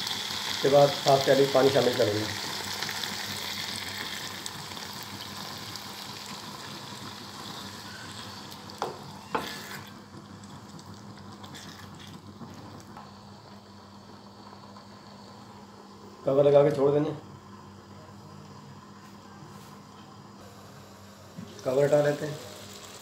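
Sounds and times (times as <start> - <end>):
food sizzling in a wok: 0.0 - 15.2, 20.5 - 23.0.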